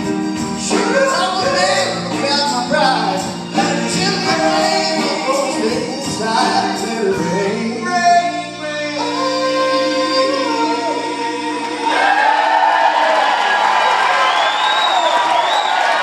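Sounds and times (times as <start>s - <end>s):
soul band and singers holding chord: 0.0s - 13.4s
audience applause and cheering: 11.6s - 16.0s.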